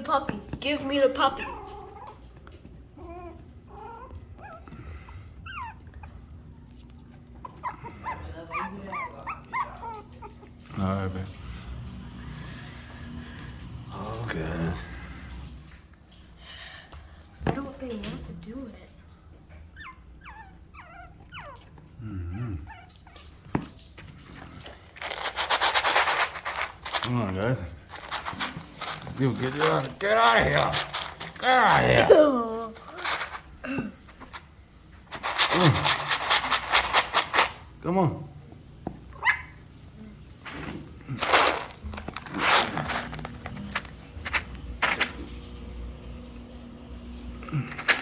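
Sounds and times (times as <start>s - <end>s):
puppies whining: 1.1s - 10.7s, 19.5s - 23.4s
puppies yipping: 5.4s - 6.2s, 7.4s - 10.5s, 19.8s - 21.8s
loud rustling scrape: 24.6s - 31.4s, 41.1s - 45.2s.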